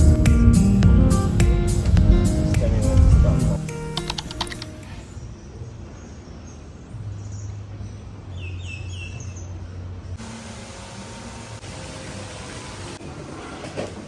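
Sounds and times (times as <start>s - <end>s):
low hum: 0.0s - 5.2s.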